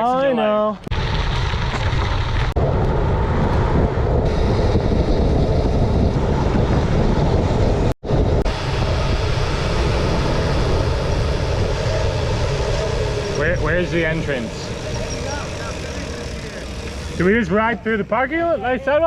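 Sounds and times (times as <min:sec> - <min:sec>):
wind buffeting microphone: 0:00.9 - 0:17.4.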